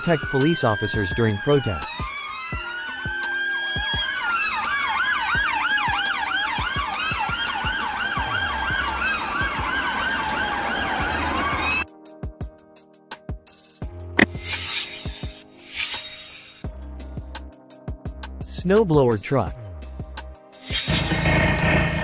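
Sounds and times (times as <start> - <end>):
fast siren yelp: 0.0 - 11.8
police sirens wailing: 0.0 - 11.8.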